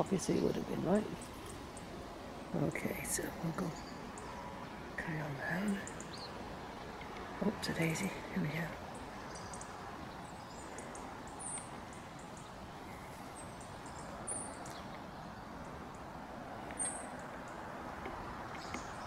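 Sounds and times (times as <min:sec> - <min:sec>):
steady background hiss: 0:00.0 - 0:19.0
small bird chirps: 0:07.0 - 0:17.7.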